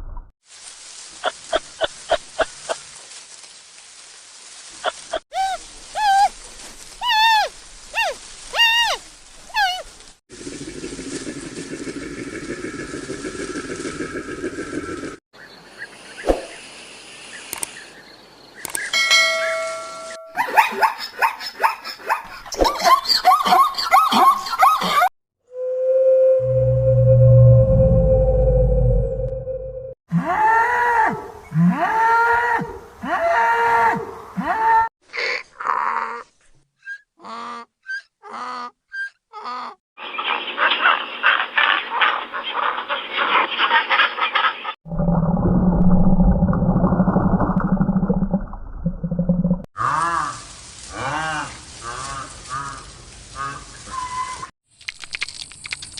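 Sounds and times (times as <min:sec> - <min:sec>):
bell-like chime: 0:19.0 - 0:20.4
flock of ducks quacking: 0:40.1 - 0:44.7
duck quacking: 0:40.4 - 0:44.7.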